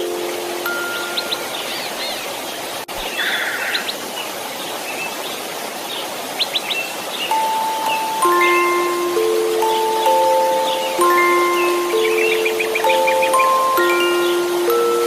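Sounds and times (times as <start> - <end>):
lullaby chime notes: 0.0 - 1.9, 7.3 - 15.0
birds chirping: 0.0 - 15.0
white-noise hiss: 0.0 - 15.0.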